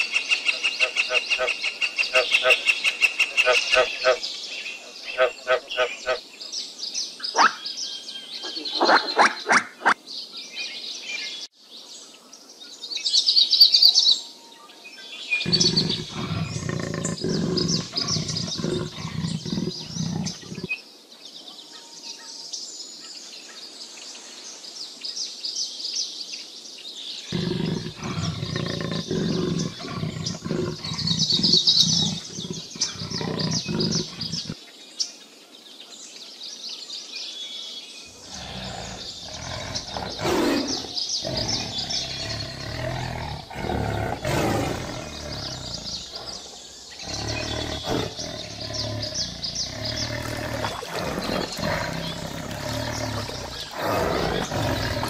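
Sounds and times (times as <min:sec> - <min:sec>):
small birds chirping: 0:00.0 - 0:14.2, 0:14.9 - 0:55.0
low rough pulsing animal call: 0:15.4 - 0:20.7, 0:27.3 - 0:34.6, 0:38.2 - 0:55.0.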